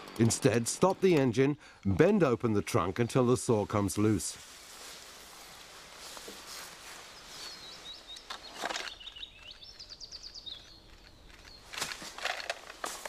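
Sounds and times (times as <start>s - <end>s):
leaves rustling underfoot: 3.5s - 13.0s
small bird chirping: 6.8s - 11.8s.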